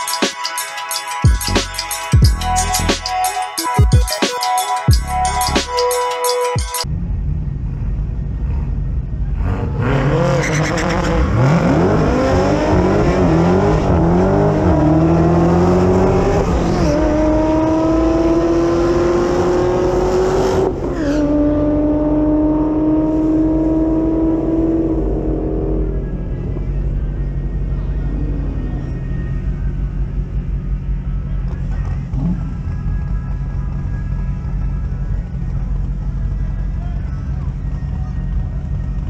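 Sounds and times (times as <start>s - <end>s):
car engine revving: 6.9s - 32.8s.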